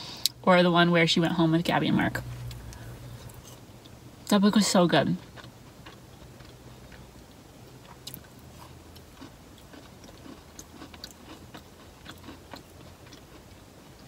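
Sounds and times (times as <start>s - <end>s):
person chewing food: 2.4s - 4.0s, 5.2s - 14.0s.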